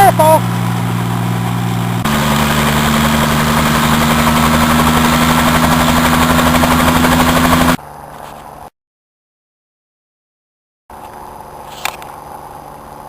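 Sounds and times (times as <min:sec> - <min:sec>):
engine running steadily: 0:00.0 - 0:08.7.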